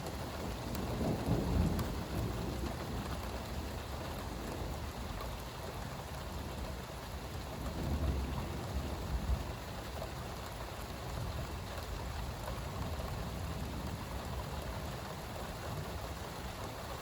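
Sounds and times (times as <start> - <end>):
low thunder rumbling: 0.0 - 6.8, 7.4 - 9.9
steady rain falling: 0.0 - 17.0.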